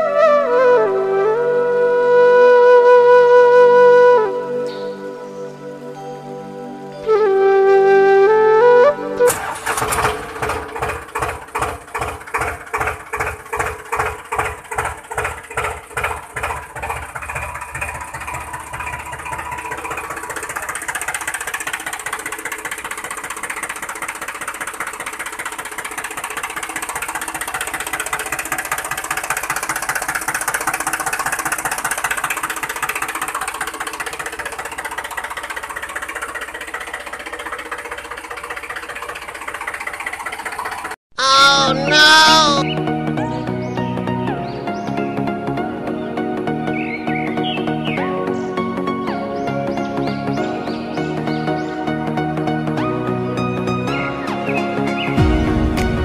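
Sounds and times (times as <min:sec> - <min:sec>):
small motor chugging and whirring: 0:09.3 - 0:41.0.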